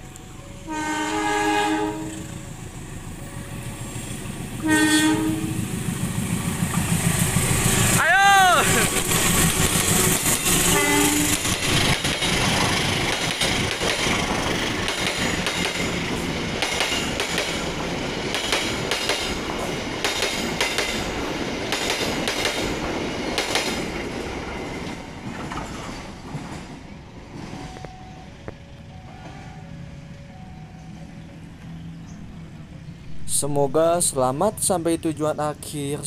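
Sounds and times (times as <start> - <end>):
train wheels clattering over rail joints: 8.9 - 28.0.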